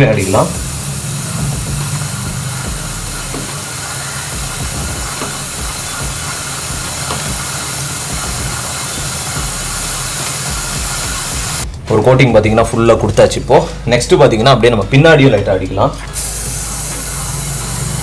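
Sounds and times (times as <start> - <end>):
aerosol spray hissing: 0.0 - 11.7, 16.1 - 18.0.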